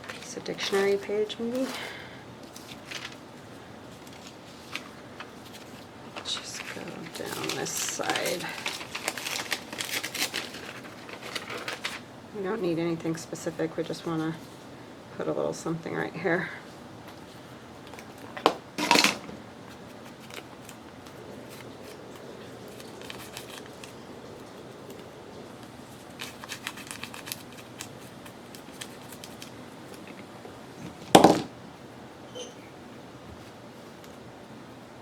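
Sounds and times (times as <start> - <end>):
paper rustling: 0.0 - 12.1, 17.0 - 31.5.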